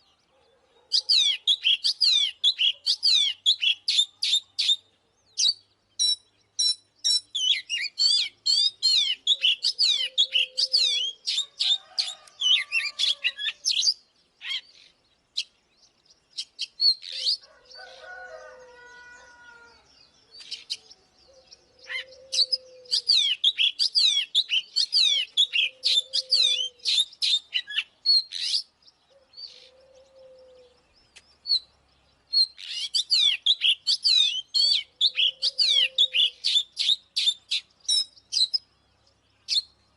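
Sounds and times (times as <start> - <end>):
low mellow bird notes: 0.0 - 39.9
bird singing whistled phrases: 5.4 - 11.8, 21.4 - 28.7, 32.4 - 38.6.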